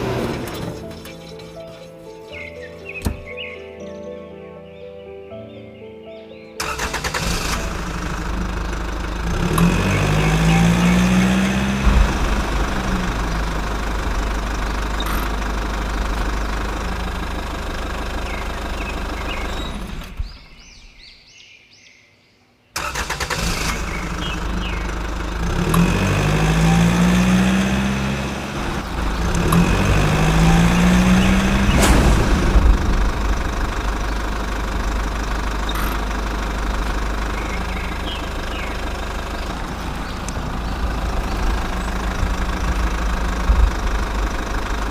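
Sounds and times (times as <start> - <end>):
small tractor motor running: 0.0 - 1.8, 6.6 - 20.6, 22.8 - 44.9.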